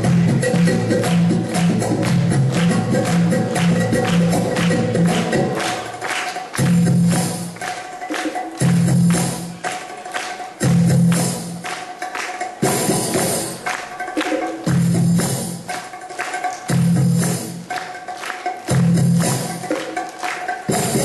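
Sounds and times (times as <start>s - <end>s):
tabla drumming: 0.0s - 21.0s.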